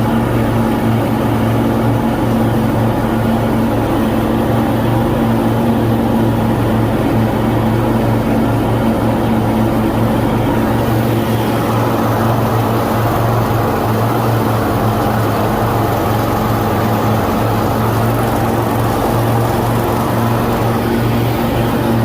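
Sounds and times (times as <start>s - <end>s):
lawn mower engine cutting grass: 10.4s - 22.0s.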